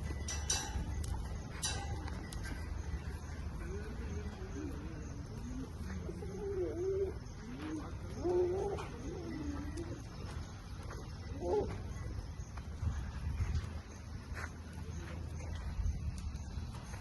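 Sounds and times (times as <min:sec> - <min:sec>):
pigeons cooing: 0:01.4 - 0:12.2.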